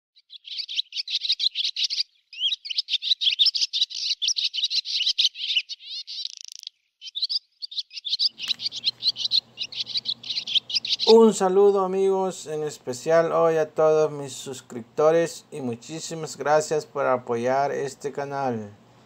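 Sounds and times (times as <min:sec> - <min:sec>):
birds twittering: 0:00.2 - 0:12.6.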